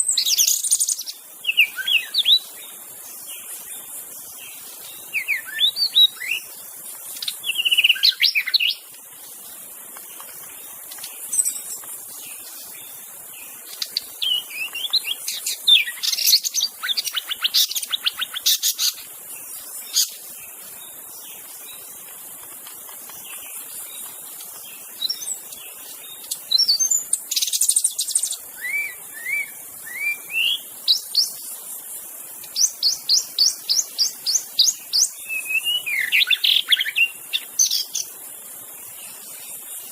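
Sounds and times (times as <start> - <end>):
songbird singing whistled phrases: 0.0 - 2.5, 5.0 - 6.5, 7.2 - 8.9, 13.7 - 19.0, 26.2 - 31.4, 32.5 - 38.1.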